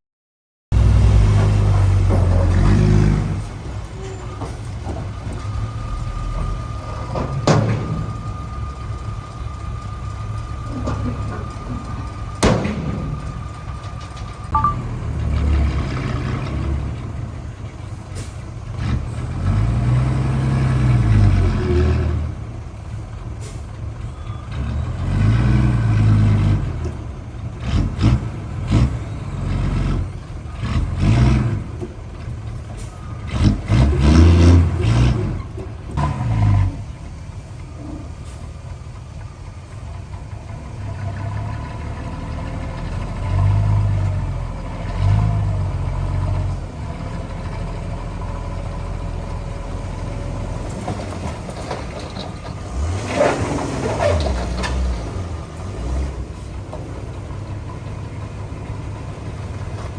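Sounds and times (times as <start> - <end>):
heavy diesel machinery revving: 0.7 - 38.1, 40.0 - 59.9
steady high-pitched tone: 14.5 - 14.8.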